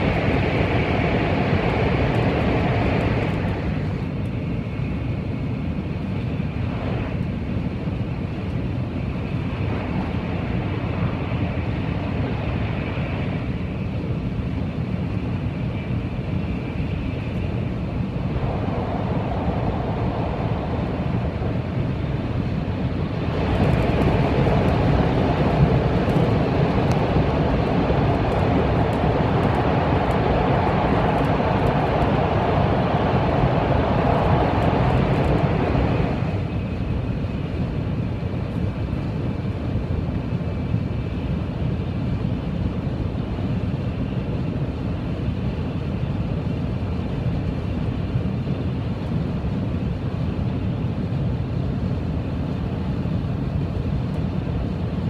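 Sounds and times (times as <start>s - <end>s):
train rumble and air rush: 0.0s - 55.0s.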